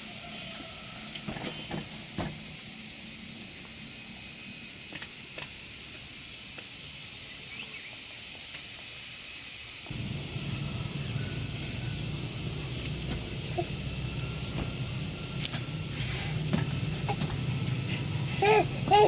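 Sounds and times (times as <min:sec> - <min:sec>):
high insect drone: 0:00.0 - 0:19.0
low steady rumble: 0:09.9 - 0:19.0.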